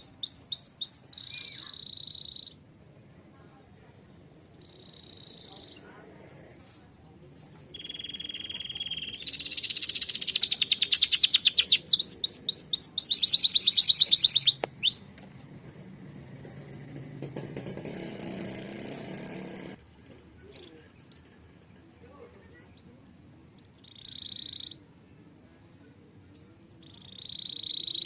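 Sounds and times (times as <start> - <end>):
canary singing trills: 0.0 - 2.7, 4.5 - 5.8, 7.7 - 15.2, 22.6 - 25.0, 26.3 - 28.0.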